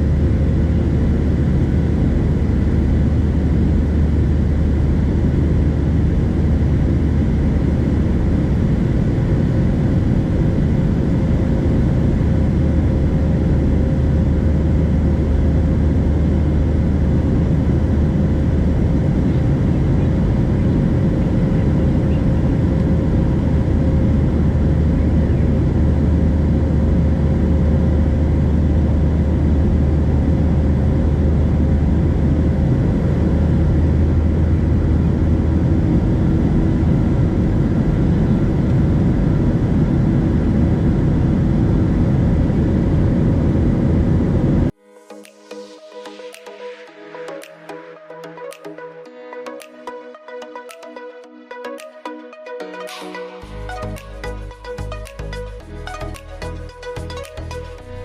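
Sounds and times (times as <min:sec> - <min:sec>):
airplane cabin engine rumble: 0:00.0 - 0:44.8.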